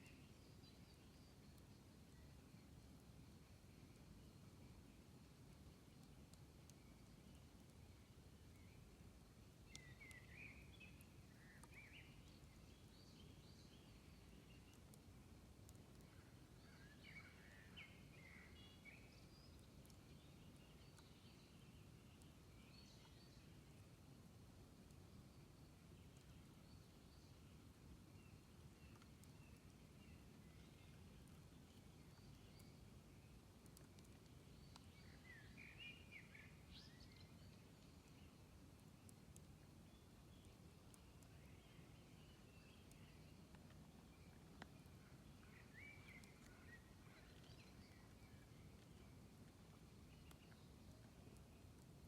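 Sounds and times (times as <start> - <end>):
faint outdoor hum: 0.0 - 52.0
faint ticks: 5.4 - 8.8, 9.5 - 23.8, 24.7 - 35.7, 36.4 - 52.0
faint sharp ticks: 9.6 - 12.6, 14.5 - 16.3, 19.3 - 20.2, 28.8 - 32.8, 33.6 - 35.4, 42.8 - 46.8.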